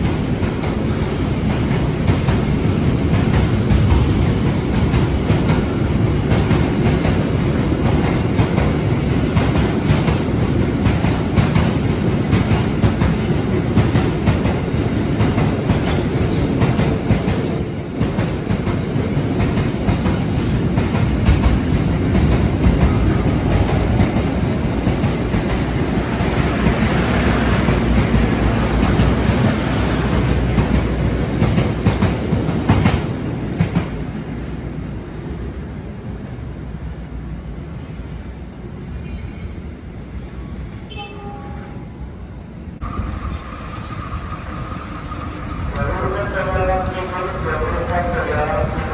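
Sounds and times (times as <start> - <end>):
train wheels clattering over rail joints: 0.0 - 34.0.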